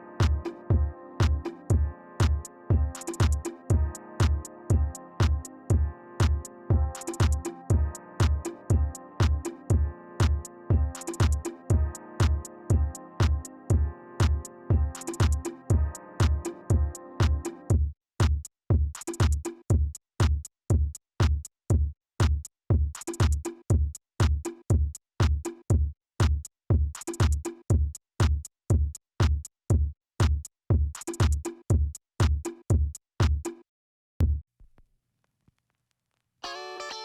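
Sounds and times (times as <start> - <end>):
electronic music with drum-machine beat: 0.0 - 17.7.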